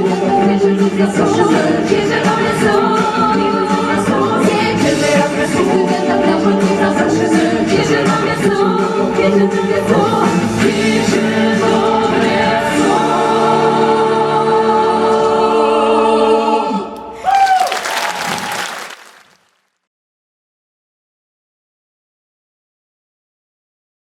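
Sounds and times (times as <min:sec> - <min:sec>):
short falling cry: 0:17.0 - 0:19.6.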